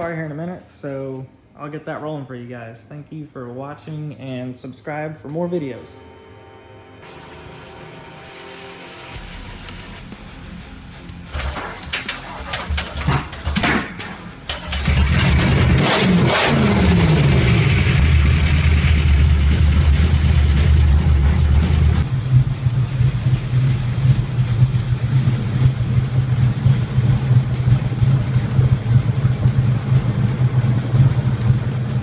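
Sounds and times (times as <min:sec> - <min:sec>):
car engine running: 0:07.0 - 0:32.0.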